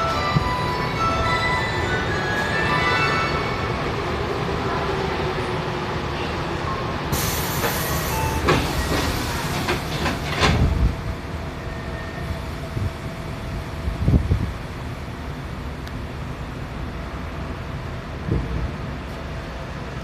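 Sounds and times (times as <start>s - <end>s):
subway car running rumble: 0.0s - 20.0s
air hiss: 7.1s - 9.6s.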